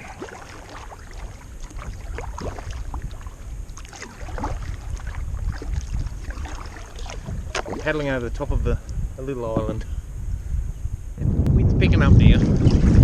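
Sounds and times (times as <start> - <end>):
paddle splashing in water: 0.0 - 8.2
wind on microphone: 0.0 - 13.0.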